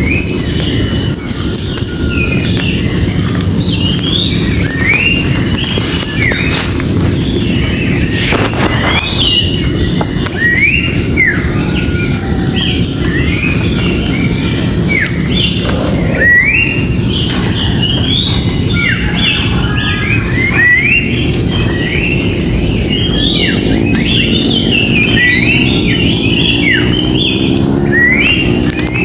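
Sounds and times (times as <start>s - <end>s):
birds whistling: 0.0s - 29.0s
low rumble of noise: 0.0s - 29.0s.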